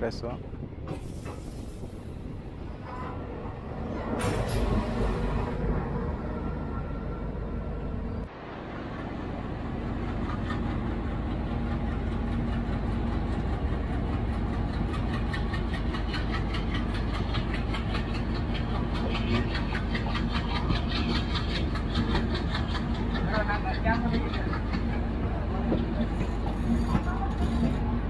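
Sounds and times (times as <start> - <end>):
locomotive engine humming: 0.0 - 28.0
train wheels clicking over rail joints: 4.1 - 5.4, 10.0 - 27.9.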